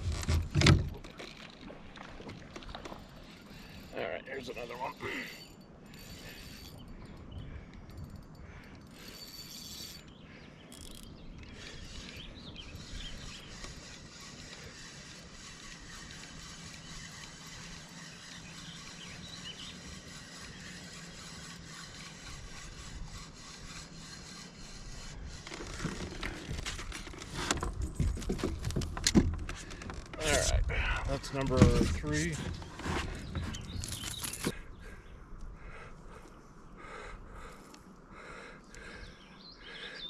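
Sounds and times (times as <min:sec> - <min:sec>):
fishing reel clicking: 0:04.8 - 0:10.1, 0:10.7 - 0:25.7.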